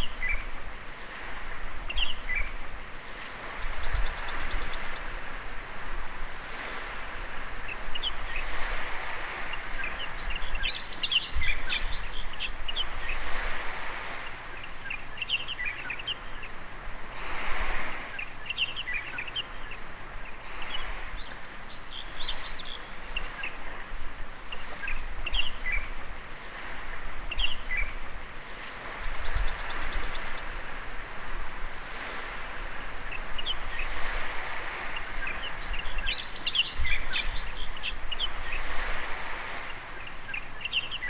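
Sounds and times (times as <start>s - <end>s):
waves washing onto beach: 0.0s - 41.0s
small birds chirping: 3.3s - 5.4s, 7.0s - 13.4s, 14.1s - 16.6s, 18.0s - 26.0s, 26.8s - 30.9s, 31.9s - 41.0s.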